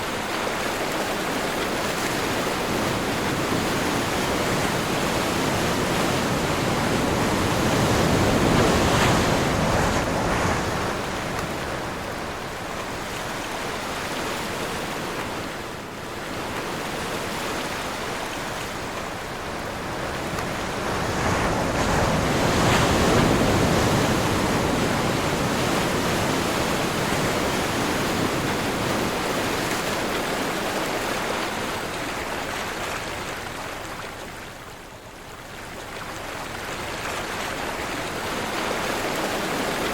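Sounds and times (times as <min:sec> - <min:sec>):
sea waves breaking: 0:00.0 - 0:39.9
wind blowing: 0:01.7 - 0:15.6.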